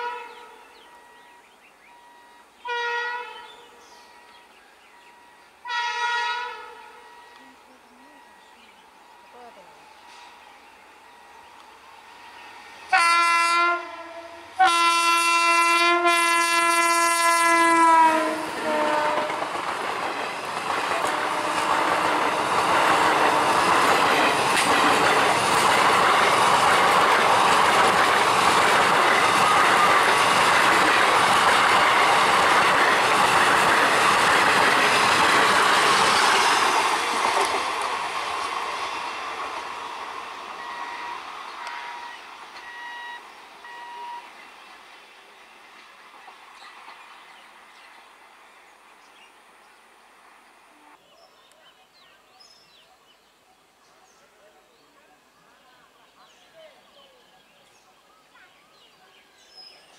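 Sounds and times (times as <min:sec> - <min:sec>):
train horn: 0:00.0 - 0:01.2, 0:02.1 - 0:04.4, 0:05.6 - 0:08.4, 0:12.9 - 0:19.6, 0:20.9 - 0:24.4, 0:40.6 - 0:44.3
train wheels rumbling on rails: 0:17.6 - 0:48.3.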